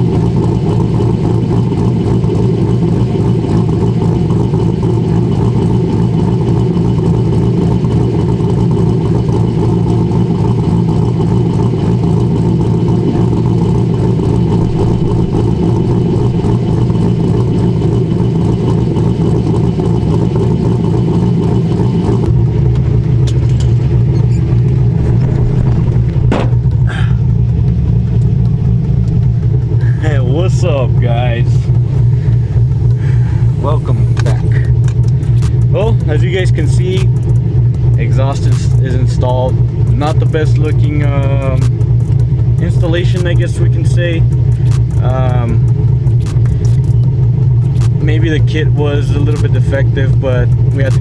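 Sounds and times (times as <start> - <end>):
car engine idling with lopey chop: 0.0 - 51.0
clicks: 33.8 - 36.0, 36.9 - 39.0, 41.5 - 42.3, 44.3 - 48.1, 50.7 - 51.0.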